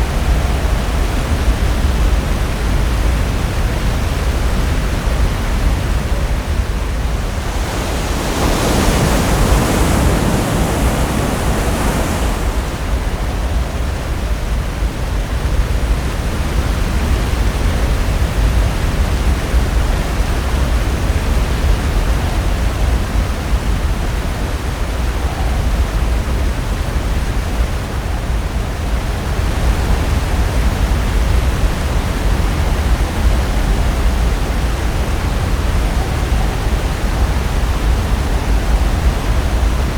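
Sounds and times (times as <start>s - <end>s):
ocean waves breaking: 5.6s - 15.8s.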